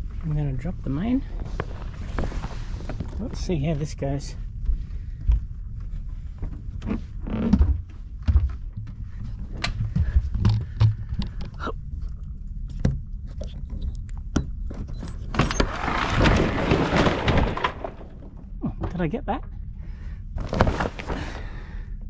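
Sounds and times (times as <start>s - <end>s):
sailcloth rustling: 1.3s - 3.4s, 20.4s - 21.5s.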